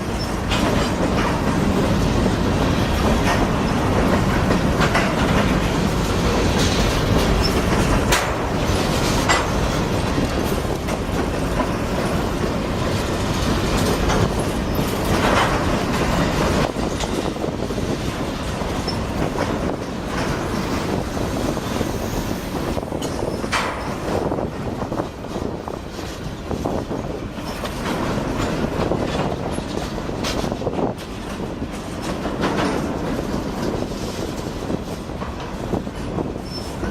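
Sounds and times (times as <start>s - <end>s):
freight train wheels rumbling: 0.0s - 36.9s
sharp clanks: 3.0s - 11.9s.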